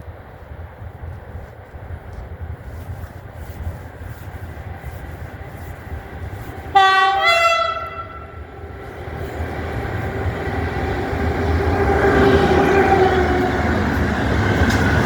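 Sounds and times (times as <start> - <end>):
approaching train rumble: 0.0 - 15.0
two-tone locomotive horn: 6.7 - 8.4.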